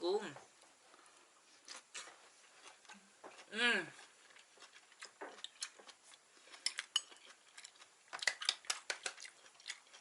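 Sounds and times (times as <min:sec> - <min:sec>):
utensils clinking against a dish: 0:06.6 - 0:07.3.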